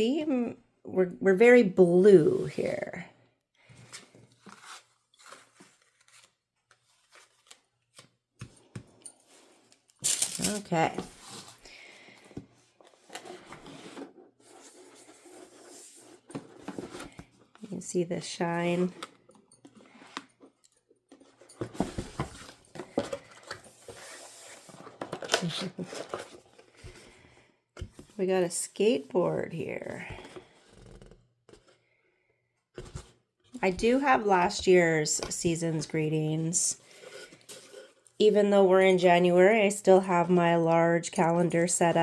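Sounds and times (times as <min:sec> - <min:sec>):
small items set down: 0:03.8 - 0:17.6, 0:18.9 - 0:27.2
packaging rustling and clicking: 0:18.9 - 0:27.0.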